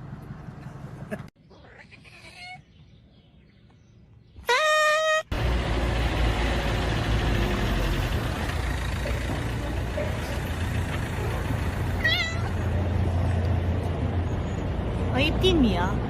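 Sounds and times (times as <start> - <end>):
vehicle engine rumble: 0.0 - 1.4, 5.3 - 16.0
road noise: 0.0 - 2.9, 3.7 - 16.0
high-pitched cry: 4.5 - 5.3.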